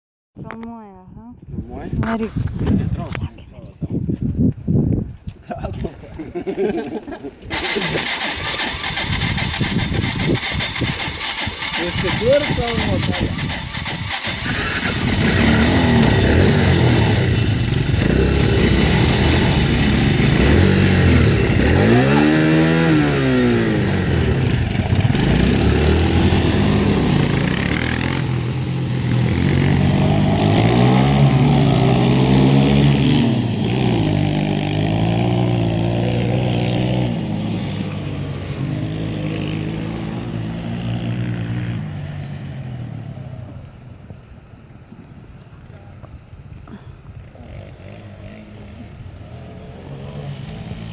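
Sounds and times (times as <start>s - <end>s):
motocross engines revving: 7.4s - 42.2s.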